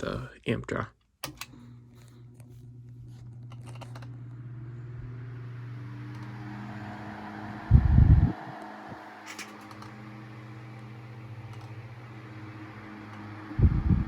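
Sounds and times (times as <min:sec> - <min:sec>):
fan switch clicks: 0:01.2 - 0:01.6, 0:10.8 - 0:11.9
electric fan motor hum: 0:01.2 - 0:14.0
rushing air from fan blades: 0:04.7 - 0:14.0.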